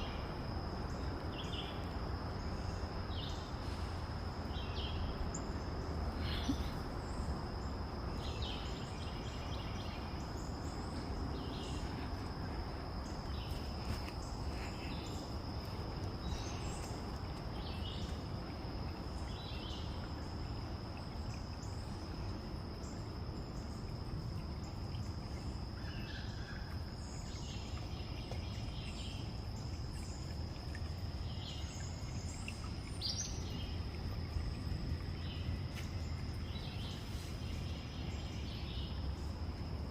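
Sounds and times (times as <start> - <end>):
low steady rumble: 27.0 - 39.9.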